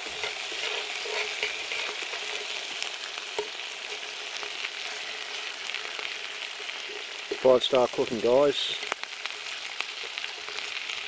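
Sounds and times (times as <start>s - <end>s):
bacon and prawns sizzling in a pan: 0.0s - 11.0s.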